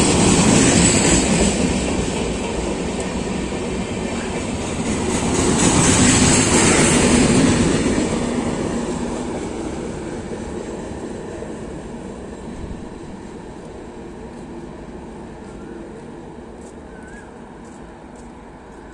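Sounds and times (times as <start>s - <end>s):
train wheels rumbling past: 0.0s - 18.9s.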